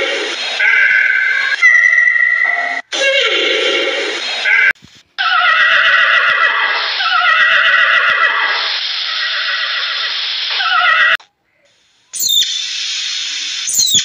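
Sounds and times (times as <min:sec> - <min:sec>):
horses whinnying: 0:05.2 - 0:08.6.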